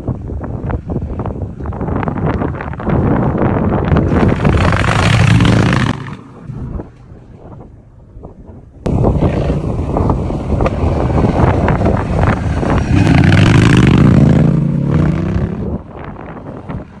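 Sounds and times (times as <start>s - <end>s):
motorcycle engine revving with crackle: 4.0s - 7.1s, 8.9s - 15.8s.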